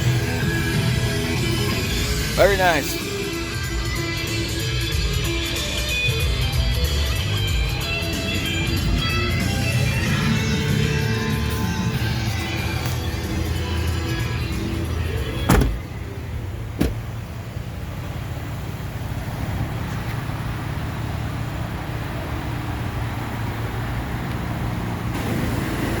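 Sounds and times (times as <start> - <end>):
background music: 0.0 - 17.0
vehicle running: 0.0 - 26.0
vehicle doors shutting: 8.6 - 17.8.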